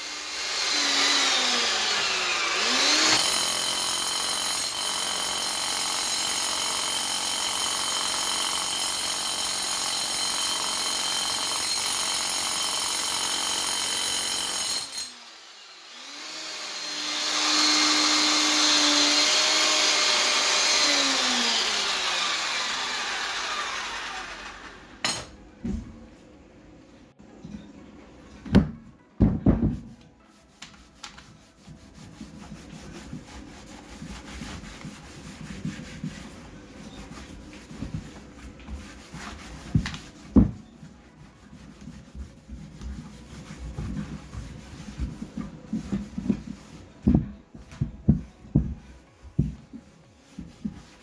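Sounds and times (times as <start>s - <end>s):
rubbing and scraping: 29.8s - 51.0s.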